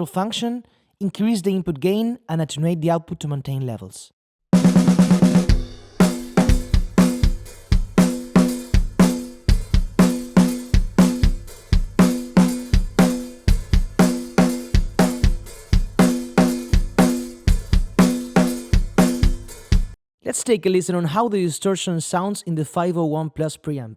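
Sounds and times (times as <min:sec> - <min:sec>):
snare drum with ringing tone: 0:04.6 - 0:20.0
kick drum: 0:06.4 - 0:08.1, 0:08.7 - 0:10.1, 0:10.7 - 0:20.0.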